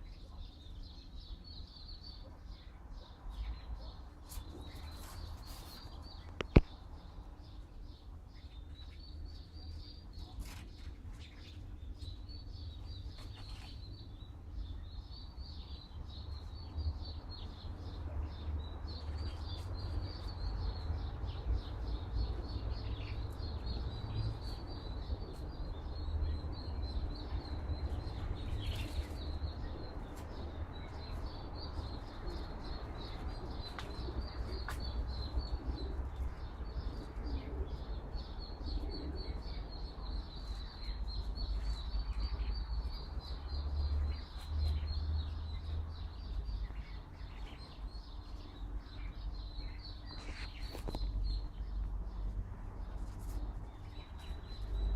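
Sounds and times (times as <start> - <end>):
small bird chirping: 0.0 - 54.9.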